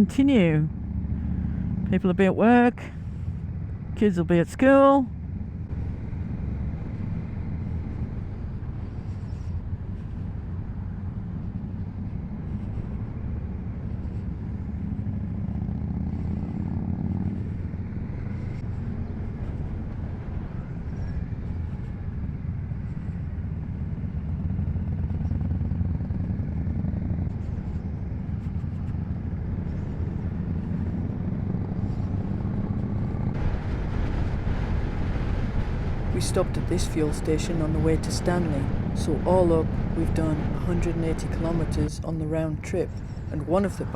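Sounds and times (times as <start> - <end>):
motorcycle engine: 0.0 - 4.0, 4.7 - 43.9
road noise: 0.0 - 43.9.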